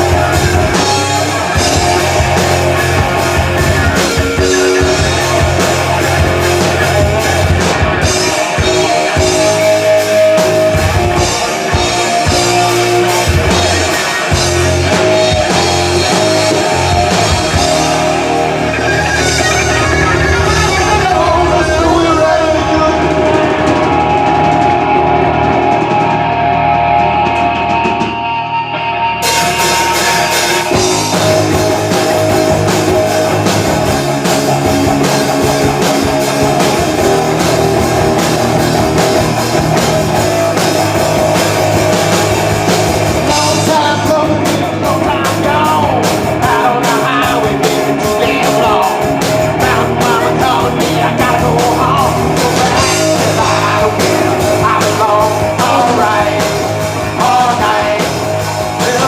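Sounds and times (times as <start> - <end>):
drums and cymbals: 0.0 - 28.4, 29.2 - 59.0
guitar: 0.0 - 59.0
live rock band playing: 0.0 - 59.0
person singing: 4.2 - 24.9, 43.2 - 59.0.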